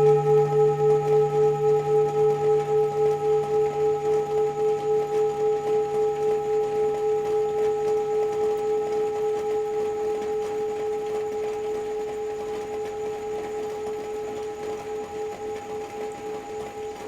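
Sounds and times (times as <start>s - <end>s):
singing bowl ringing: 0.0s - 11.0s.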